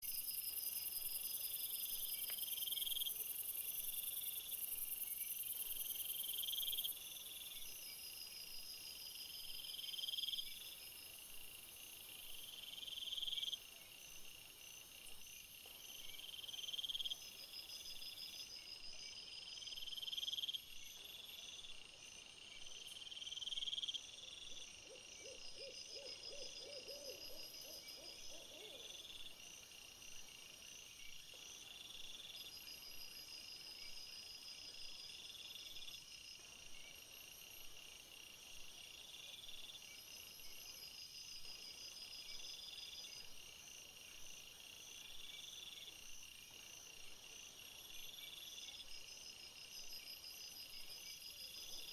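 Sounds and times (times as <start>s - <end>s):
low pulsed insect call: 0.0s - 51.9s
pulsed cricket chirping: 0.1s - 51.9s.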